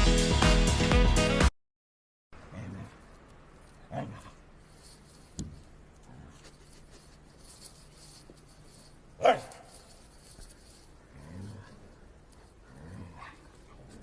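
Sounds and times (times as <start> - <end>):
dog barking: 9.2 - 9.8.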